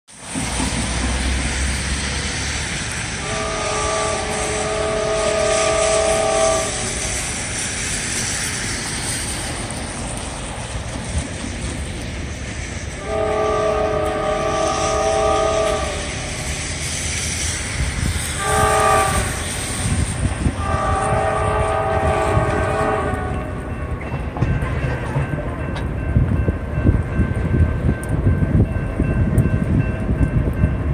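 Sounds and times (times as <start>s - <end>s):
train rumble and wheel clatter: 0.1s - 30.9s
steady hiss: 0.2s - 24.3s
locomotive air horn blasts: 3.1s - 7.1s, 13.0s - 16.5s, 18.4s - 23.7s.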